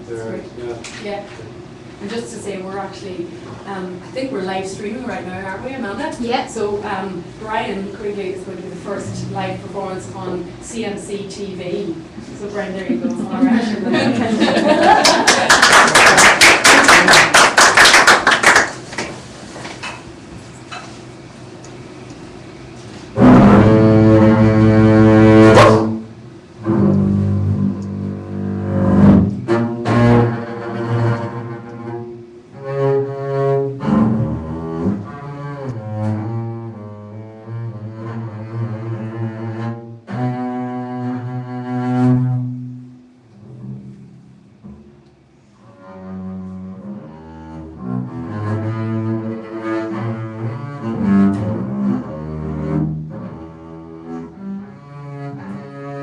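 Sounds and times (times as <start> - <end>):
bowed low string instrument: 2.1 - 14.7, 22.1 - 56.0.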